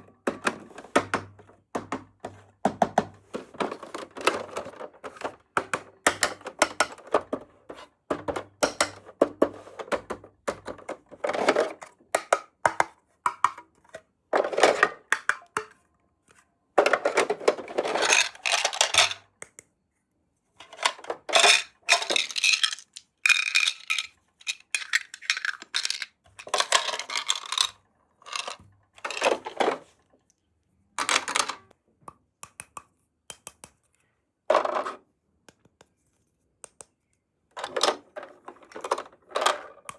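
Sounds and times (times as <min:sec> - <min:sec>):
toy pieces clicking and clattering: 0:17.6 - 0:19.2, 0:20.6 - 0:29.5.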